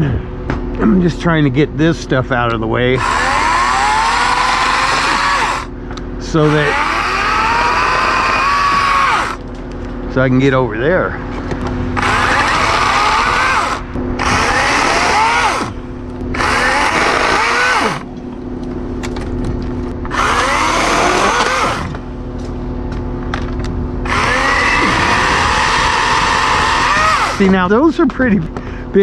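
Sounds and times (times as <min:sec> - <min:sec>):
electric chainsaw cutting limbs: 0:03.0 - 0:05.7, 0:06.4 - 0:09.4, 0:12.0 - 0:18.1, 0:20.0 - 0:22.1, 0:24.0 - 0:27.7.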